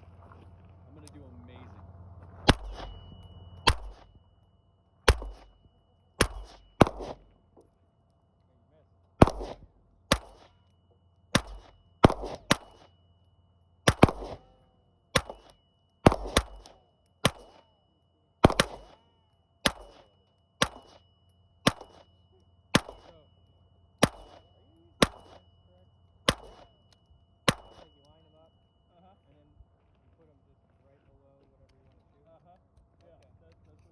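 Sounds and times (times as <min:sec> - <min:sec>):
rifle shots with echo: 0:02.4 - 0:04.2, 0:05.1 - 0:05.6, 0:06.2 - 0:07.4, 0:09.2 - 0:10.6, 0:11.3 - 0:13.0, 0:13.8 - 0:17.8, 0:18.4 - 0:21.0, 0:21.6 - 0:22.1, 0:22.7 - 0:23.3, 0:24.0 - 0:25.5, 0:26.3 - 0:26.8, 0:27.5 - 0:28.1.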